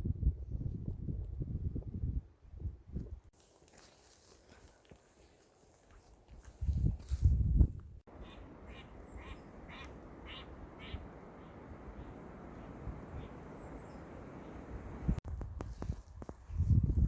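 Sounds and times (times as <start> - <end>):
low rush of wind: 0.0 - 3.3, 6.6 - 17.0
animal calling in series: 8.1 - 14.1.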